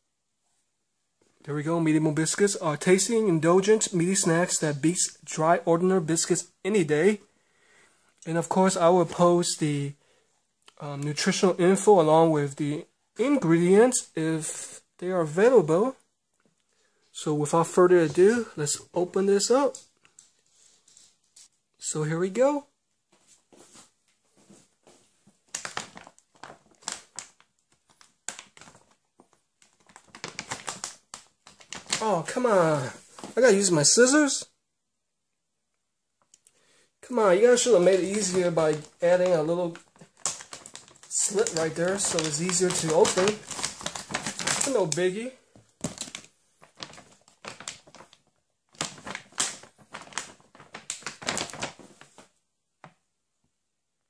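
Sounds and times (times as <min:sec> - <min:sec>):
plastic bag crinkling: 0:25.3 - 0:34.0, 0:36.2 - 0:52.4.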